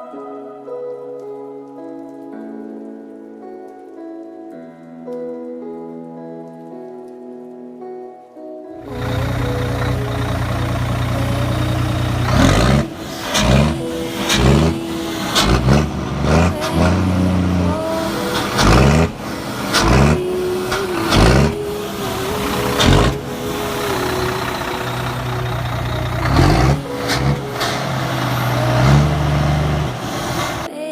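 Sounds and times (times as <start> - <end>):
diesel truck engine revving: 8.9 - 30.7.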